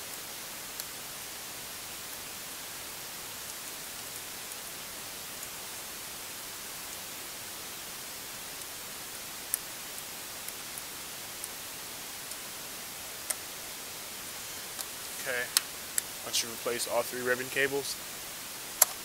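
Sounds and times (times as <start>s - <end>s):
recording hiss: 0.0s - 19.0s.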